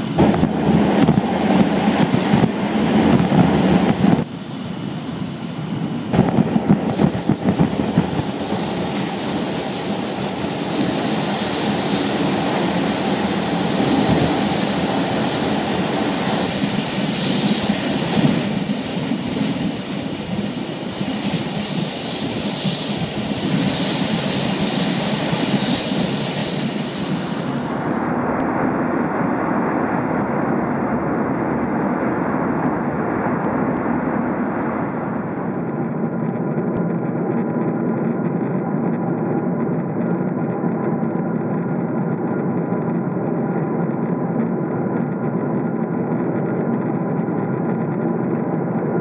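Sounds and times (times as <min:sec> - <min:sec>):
high hiss: 0:00.0 - 0:00.4, 0:04.2 - 0:18.8.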